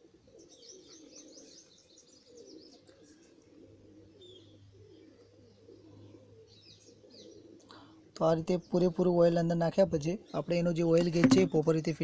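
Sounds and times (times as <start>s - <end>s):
low cooing: 0.0s - 8.0s.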